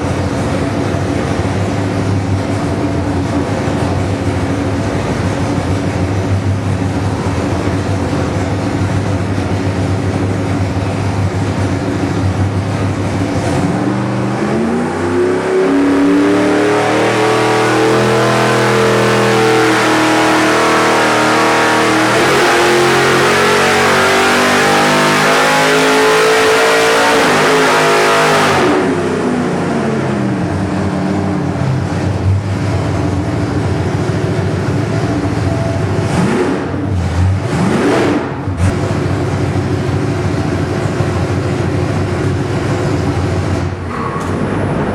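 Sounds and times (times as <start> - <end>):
engine revving at full throttle: 12.0 - 31.6, 34.8 - 41.8.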